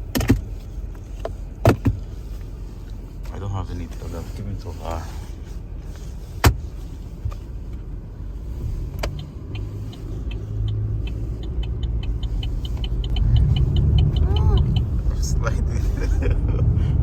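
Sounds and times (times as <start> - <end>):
car cabin rumble: 0.0 - 17.0
fast light ticks: 9.0 - 15.0.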